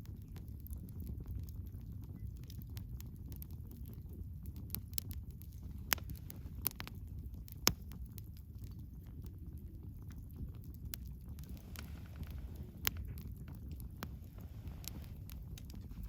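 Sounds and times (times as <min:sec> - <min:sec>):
campfire crackling: 0:00.0 - 0:16.0
loud fire pops: 0:10.4 - 0:16.0.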